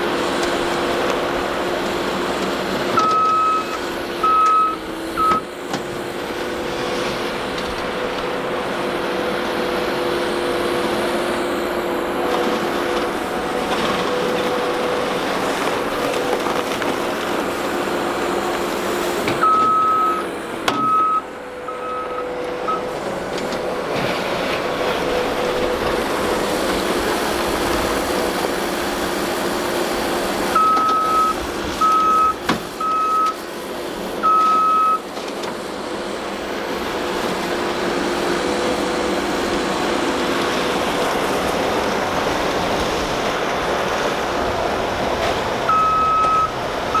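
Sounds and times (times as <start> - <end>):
track loader running: 0.0 - 47.0
backup alarm beeping: 2.9 - 5.5, 19.4 - 22.9, 30.6 - 33.4, 34.2 - 35.0, 45.7 - 47.0.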